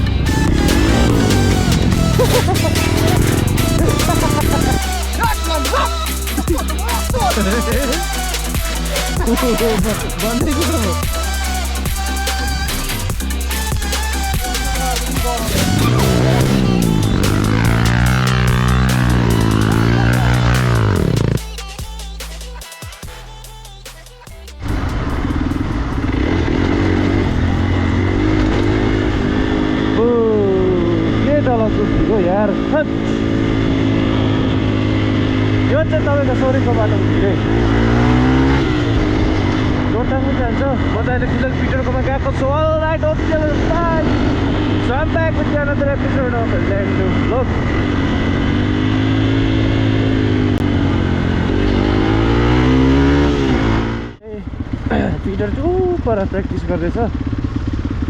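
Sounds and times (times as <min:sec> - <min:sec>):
motorcycle engine running: 0:00.0 - 0:23.4, 0:24.0 - 0:58.0
electronic music: 0:00.0 - 0:24.7.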